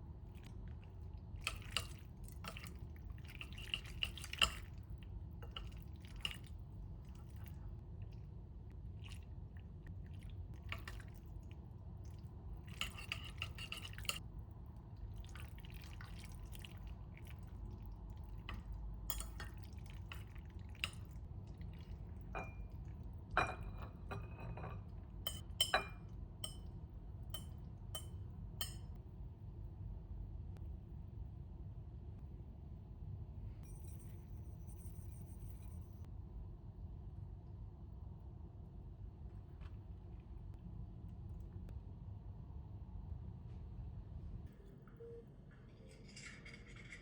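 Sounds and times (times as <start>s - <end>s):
dishes clicking and tapping: 1.4s - 2.7s, 12.7s - 14.2s, 18.4s - 21.1s, 22.3s - 26.7s, 27.4s - 28.9s
glass or ceramic clinking: 22.4s - 22.7s, 23.4s - 26.6s.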